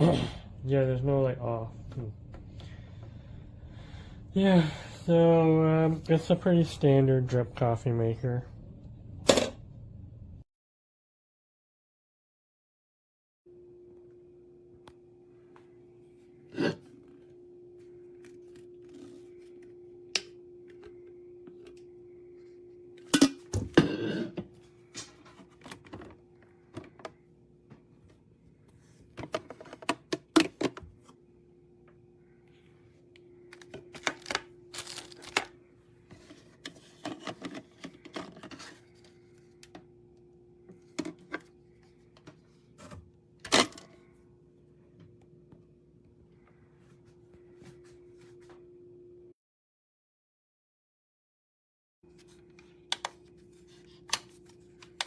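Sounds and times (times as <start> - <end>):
steady hum: 0.0 - 10.4.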